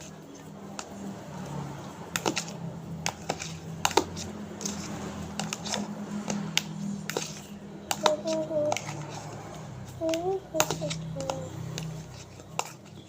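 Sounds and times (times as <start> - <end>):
spoon tapping against a container: 7.9 - 9.0.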